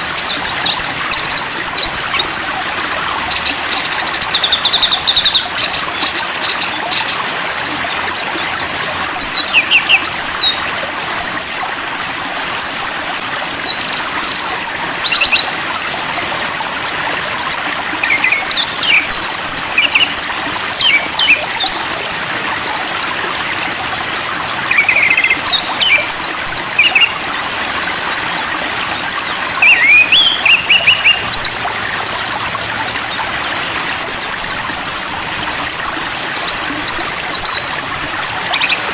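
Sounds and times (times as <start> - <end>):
songbird singing: 24.7 - 27.2, 29.6 - 31.6, 33.1 - 38.9.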